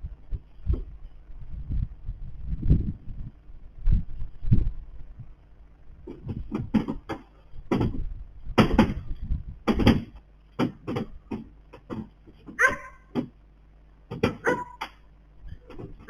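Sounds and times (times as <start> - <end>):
irregular knocks and thuds: 6.0 - 13.4, 14.0 - 16.0.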